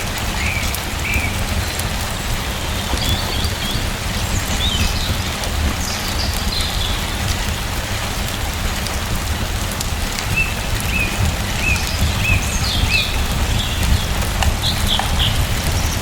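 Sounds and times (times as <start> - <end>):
steady rain: 0.0 - 16.0
bird chirping: 10.4 - 16.0.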